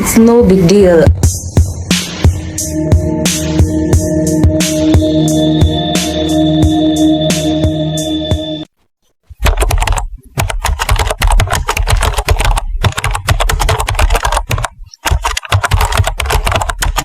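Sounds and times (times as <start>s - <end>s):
music: 0.0s - 8.7s
heavy low thumps: 1.0s - 8.5s
rapid crackly clicks and knocks: 9.3s - 17.0s.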